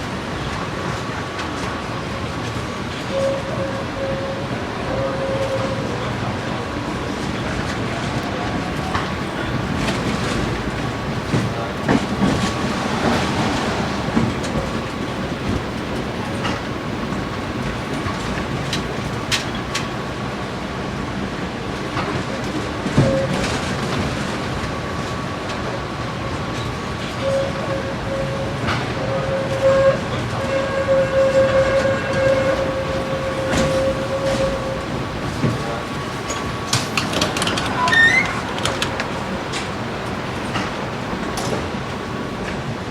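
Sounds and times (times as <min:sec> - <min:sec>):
tram rumbling on tracks: 0:00.0 - 0:42.9
wheels knocking over rails: 0:09.0 - 0:20.1, 0:32.4 - 0:42.3
steady whining tone: 0:09.0 - 0:20.2, 0:32.0 - 0:42.5.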